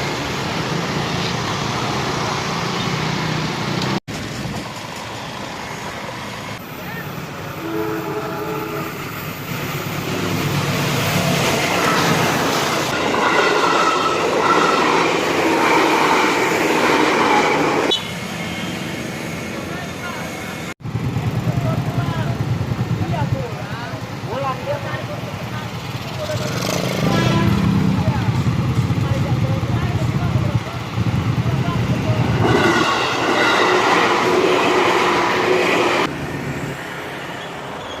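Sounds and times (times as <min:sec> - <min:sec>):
road traffic noise: 0:00.0 - 0:38.0
train wheels rumbling on rails: 0:03.6 - 0:07.5, 0:08.9 - 0:37.2.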